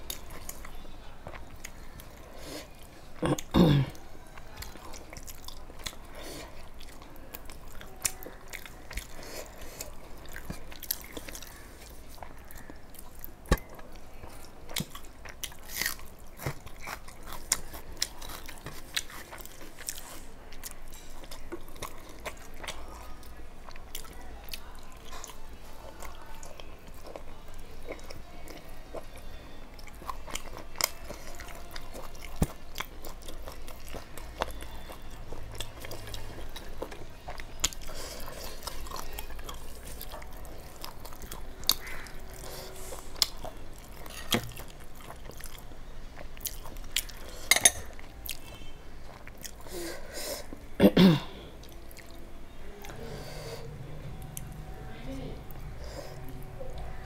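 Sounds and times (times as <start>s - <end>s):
chewing and biting: 4.4s - 49.7s.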